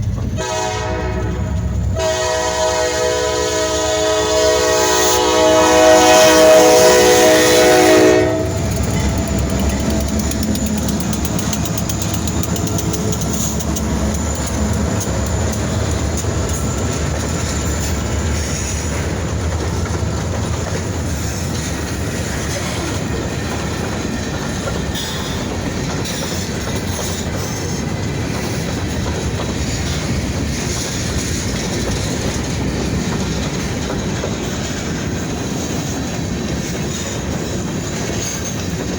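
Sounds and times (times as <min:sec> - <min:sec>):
train rumbling past: 0:00.0 - 0:38.9
wheels clacking over rail joints: 0:00.0 - 0:38.9
train horn chord: 0:00.4 - 0:08.7.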